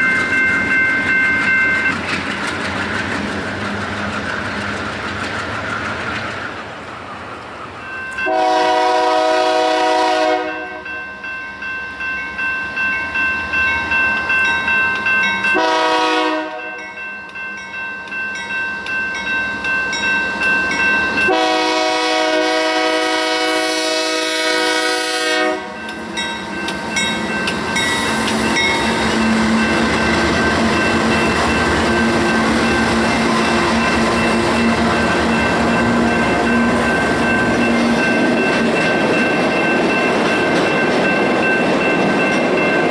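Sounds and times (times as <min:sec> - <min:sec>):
train wheels clickety-clack: 0:00.0 - 0:10.6, 0:13.8 - 0:42.9
passing train rumble and engine hum: 0:00.0 - 0:42.9
locomotive air horn blasts: 0:08.2 - 0:10.8, 0:15.6 - 0:16.7, 0:21.3 - 0:25.8.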